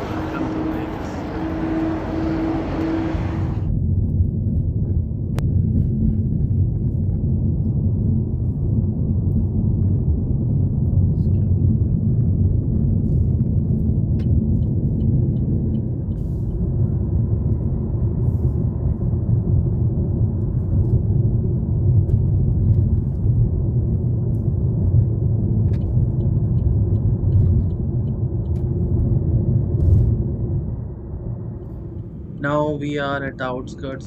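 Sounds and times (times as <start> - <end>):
tyre noise on road: 0.0 - 3.7
car engine rumble: 0.0 - 34.0.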